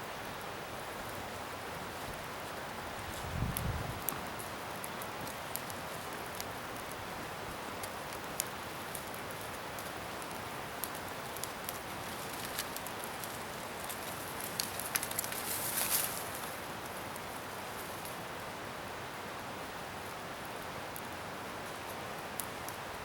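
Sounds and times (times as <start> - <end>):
bonfire hissing: 0.3 - 23.0
fire crackling and popping: 1.9 - 18.5, 20.4 - 23.0.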